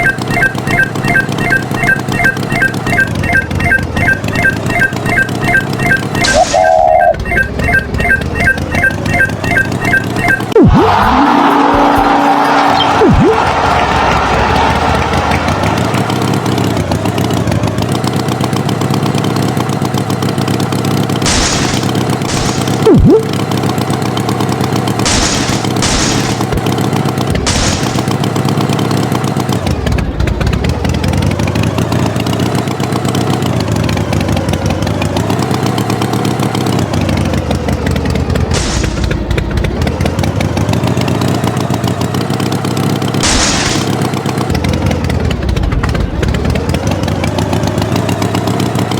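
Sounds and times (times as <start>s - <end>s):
loud brief tone: 0.0s - 11.6s
tractor engine running: 0.0s - 48.9s
sharp cracks: 21.2s - 22.9s, 25.0s - 26.7s, 27.4s - 28.3s, 38.5s - 39.2s, 43.2s - 44.2s.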